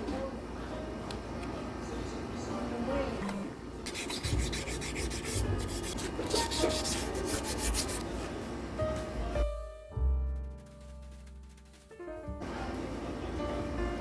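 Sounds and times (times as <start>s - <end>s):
sandpaper rubbing on metal frame: 3.9s - 8.0s.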